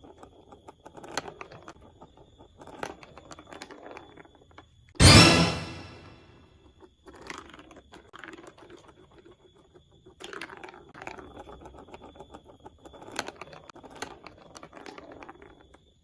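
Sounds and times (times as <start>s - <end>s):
plastic blocks clicking and rattling: 7.1s - 15.6s.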